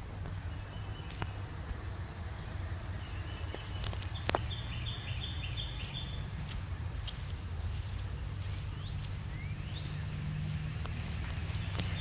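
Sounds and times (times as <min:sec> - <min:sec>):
footsteps on mud: 0:05.8 - 0:12.0.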